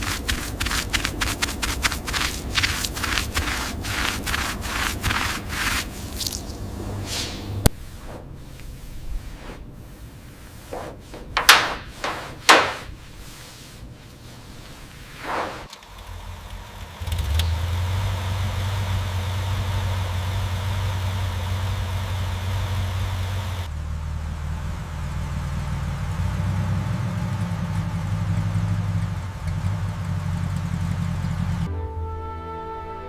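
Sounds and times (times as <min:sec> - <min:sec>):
car engine starting and idling: 0:02.2 - 0:07.7, 0:15.7 - 0:31.7.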